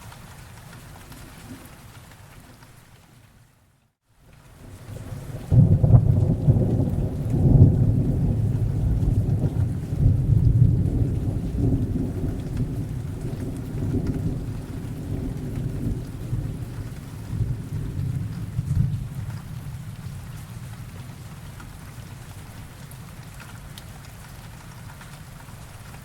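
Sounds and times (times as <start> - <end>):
steady rain: 0.0 - 26.0
rolling thunder rumble: 4.7 - 21.8.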